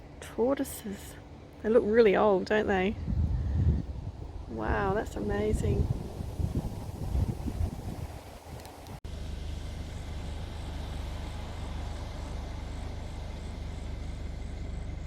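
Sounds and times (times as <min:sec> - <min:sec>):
car engine running: 0:09.1 - 0:15.0.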